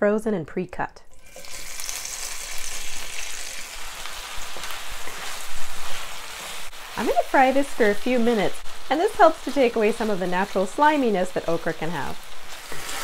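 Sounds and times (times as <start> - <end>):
okra sizzling in hot fat: 1.1 - 13.0
wooden spoon stirring: 3.8 - 13.0.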